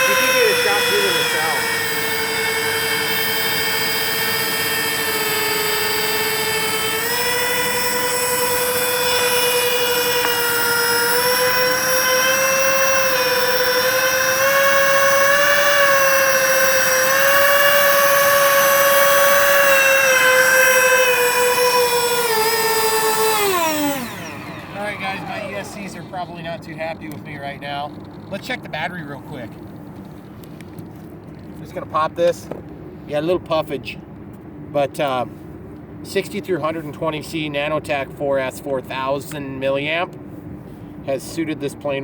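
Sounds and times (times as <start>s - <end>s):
electric fan motors whining: 0.0s - 27.8s.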